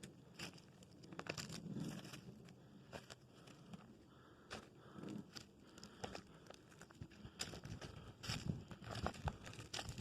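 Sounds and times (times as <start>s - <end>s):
footsteps crunching on leaves and twigs: 0.3s - 3.9s, 5.3s - 10.0s.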